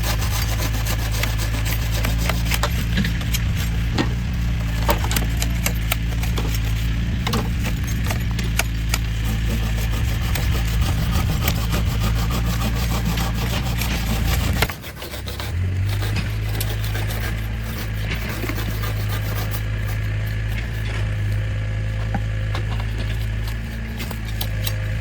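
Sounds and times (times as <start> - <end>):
motor running at steady pitch: 0.0 - 25.0
motorised tool cutting wood: 0.0 - 25.0.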